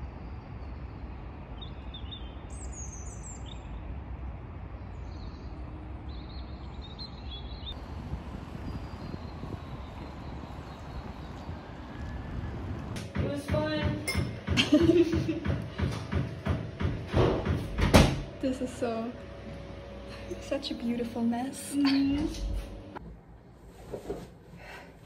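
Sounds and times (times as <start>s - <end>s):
low outdoor rumble: 0.0s - 23.6s
small birds chirping: 0.5s - 3.9s, 4.8s - 12.9s.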